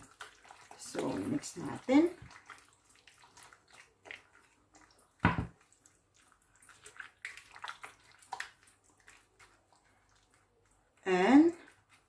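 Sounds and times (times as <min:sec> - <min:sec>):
wet squelches of mixing chicken: 0:00.0 - 0:12.0
thump: 0:05.2 - 0:05.5.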